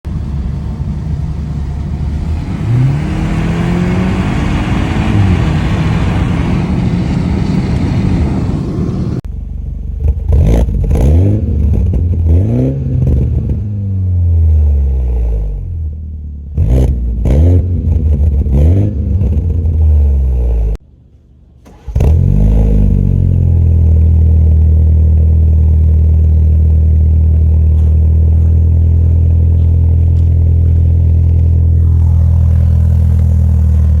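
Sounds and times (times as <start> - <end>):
rush of noise: 0.1 - 9.2, 31.1 - 34.0
car engine revving: 1.3 - 9.2, 10.0 - 15.6, 27.3 - 34.0.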